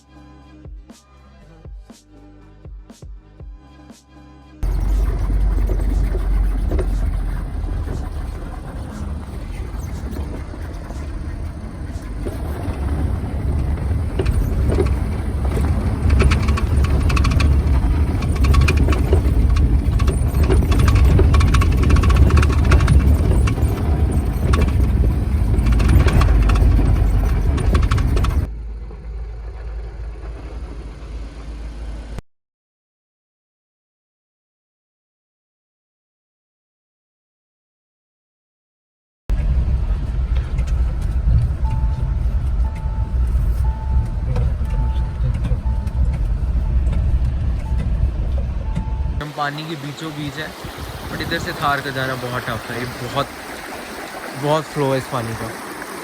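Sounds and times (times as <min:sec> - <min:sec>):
sharp knocks and clatters: 0:04.6 - 0:28.5
car engine rumbling under load: 0:04.6 - 0:32.2, 0:39.3 - 0:56.0.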